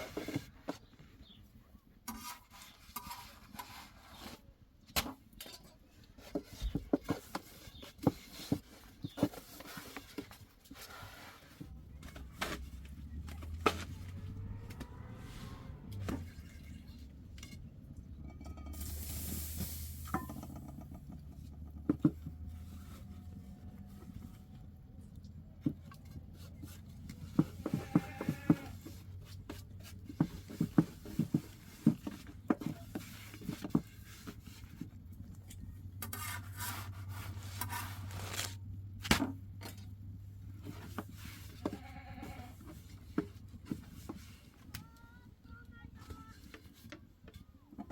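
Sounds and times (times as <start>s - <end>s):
goats bleating: 27.7s - 28.8s.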